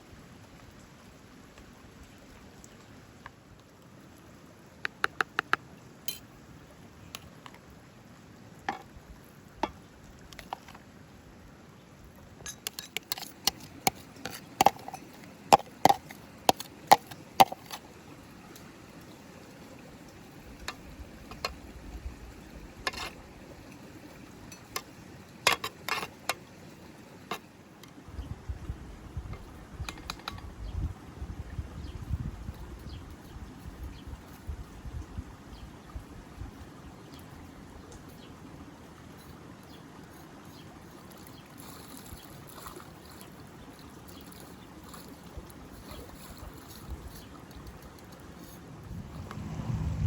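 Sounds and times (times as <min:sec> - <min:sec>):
utensils clinking against dishes: 0:12.5 - 0:17.8.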